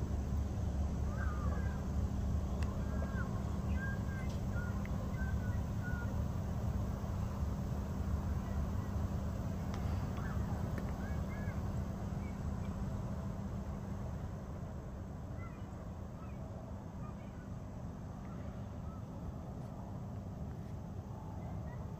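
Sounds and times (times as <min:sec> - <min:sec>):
freight train rumbling: 0:00.0 - 0:21.8
small birds chirping: 0:01.0 - 0:06.2, 0:08.4 - 0:12.8.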